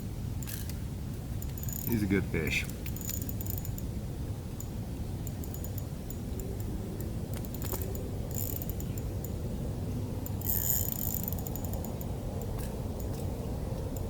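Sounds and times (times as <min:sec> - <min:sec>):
steady low rumble: 0:00.0 - 0:14.0
fishing reel ticking: 0:00.4 - 0:00.7, 0:01.4 - 0:02.0, 0:02.6 - 0:03.9, 0:05.3 - 0:09.1, 0:10.2 - 0:12.1.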